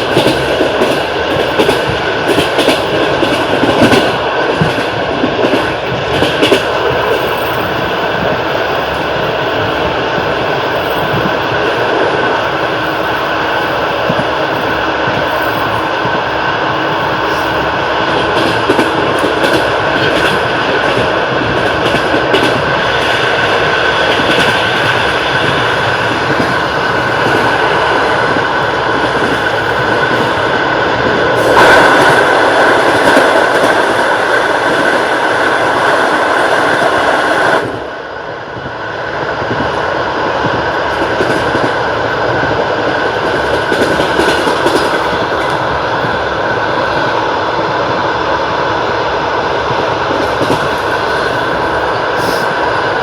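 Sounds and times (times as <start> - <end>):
train wheels clattering over rail joints: 0.0 - 8.3, 17.2 - 30.4
train rumble: 0.0 - 53.0.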